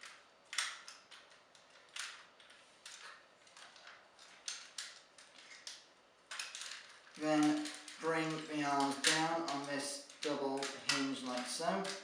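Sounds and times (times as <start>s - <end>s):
plastic toy parts clicking: 0.0s - 12.0s.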